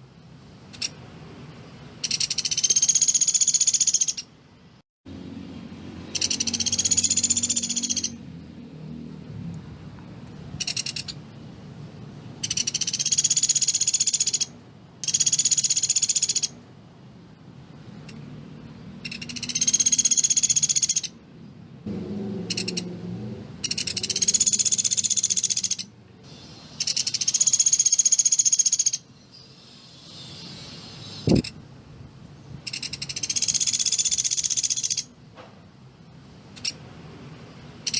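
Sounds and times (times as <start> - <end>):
woodpecker rattling trills: 2.0 - 4.3, 6.1 - 8.2, 10.6 - 11.2, 12.4 - 16.6, 19.0 - 21.2, 22.5 - 22.9, 23.6 - 25.9, 26.8 - 29.0, 32.7 - 35.1.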